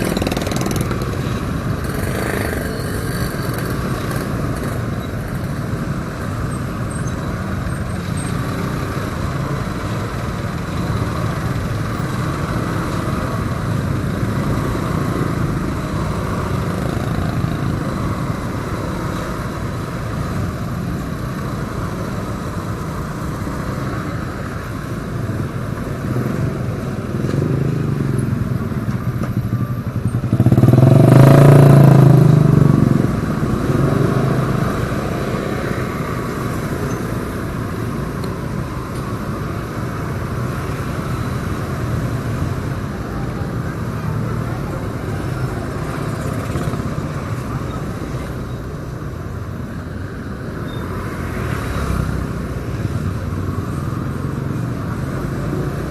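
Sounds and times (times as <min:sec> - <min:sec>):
motorcycle engine: 0:00.0 - 0:05.8, 0:27.2 - 0:37.2
road noise: 0:00.0 - 0:55.9.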